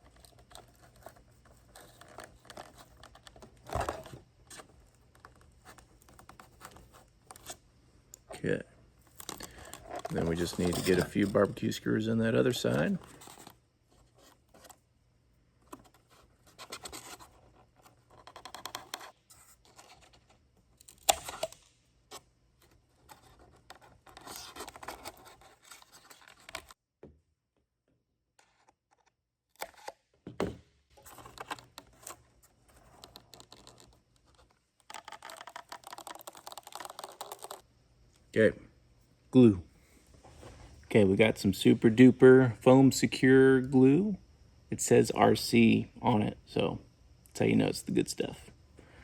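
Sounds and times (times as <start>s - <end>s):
skewer scratching foam: 9.5s - 11.7s, 15.7s - 20.4s, 21.2s - 26.8s.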